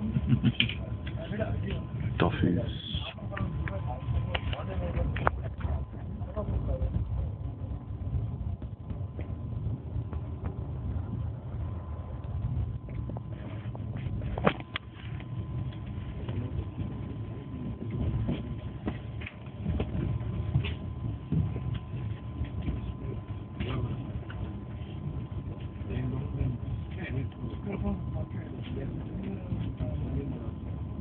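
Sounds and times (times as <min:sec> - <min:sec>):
train rumble: 0:00.0 - 0:31.0.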